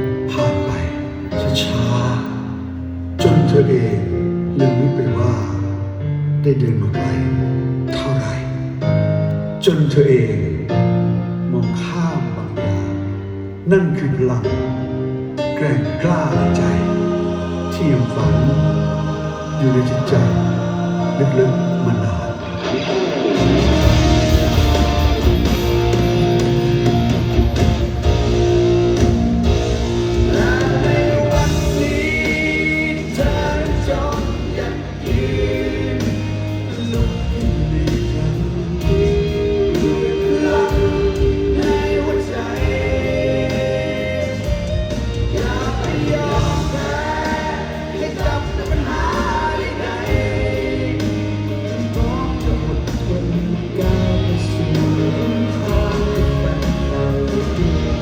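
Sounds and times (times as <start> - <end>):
live band playing pop-rock: 14.5 - 58.0.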